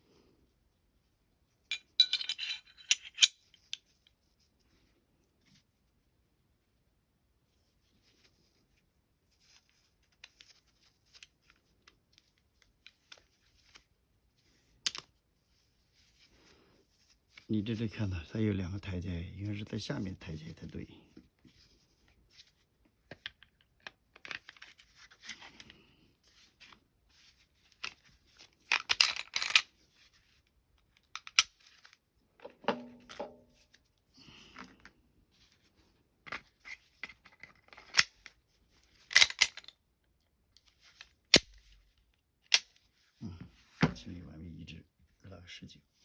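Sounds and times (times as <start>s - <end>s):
pistol parts clicking: 1.7s - 3.8s, 14.8s - 15.1s, 28.7s - 29.6s, 31.2s - 31.5s, 37.4s - 38.2s, 39.1s - 39.7s.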